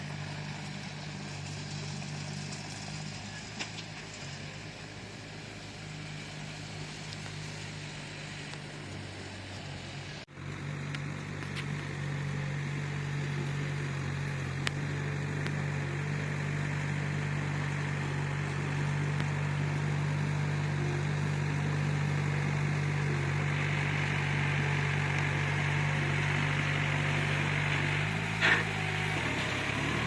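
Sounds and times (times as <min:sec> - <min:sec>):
bulldozer diesel engine: 0:00.0 - 0:30.0.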